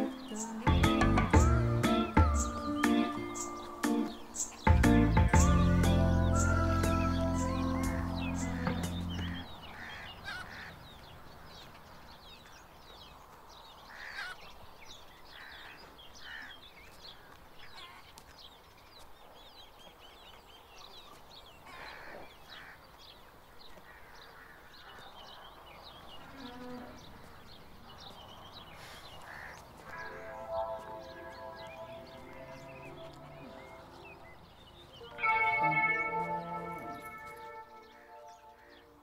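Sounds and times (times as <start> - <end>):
birds chirping: 0.0 - 39.0
short bird calls: 28.6 - 38.8.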